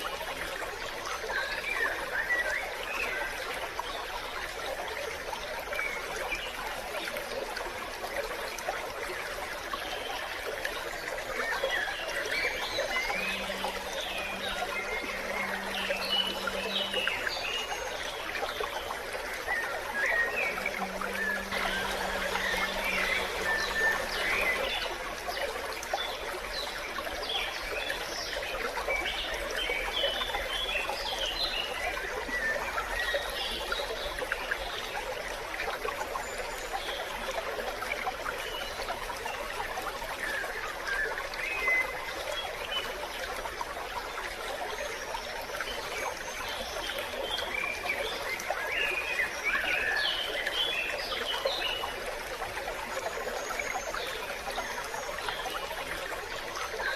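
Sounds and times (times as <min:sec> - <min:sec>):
stream trickling: 0:00.0 - 0:56.9
birds chirping: 0:11.8 - 0:25.0.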